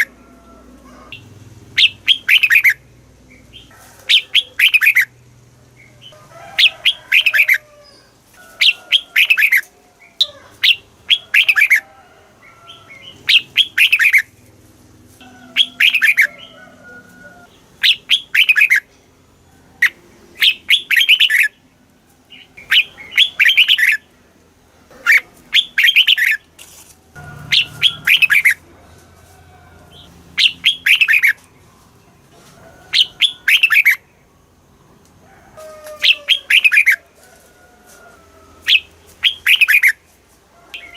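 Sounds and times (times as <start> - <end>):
bulbul singing: 1.1 - 7.6, 8.6 - 11.8, 12.7 - 14.4, 15.2 - 16.5, 17.4 - 18.9, 19.8 - 21.6, 22.3 - 24.1, 25.1 - 26.5, 27.2 - 28.7, 29.9 - 32.2, 32.9 - 34.7, 36.0 - 37.0, 38.7 - 40.0.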